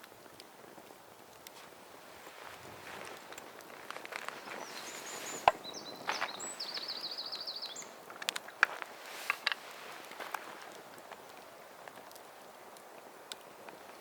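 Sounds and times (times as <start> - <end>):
firewood being chopped: 5.4 - 6.4, 8.0 - 12.2.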